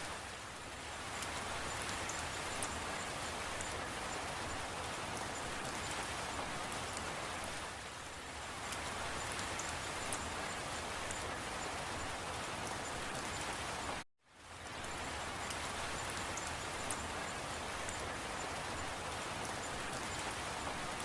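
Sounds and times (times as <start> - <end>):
rain falling: 0.0 - 21.0
sharp raindrop ticks: 8.6 - 13.5, 14.6 - 21.0.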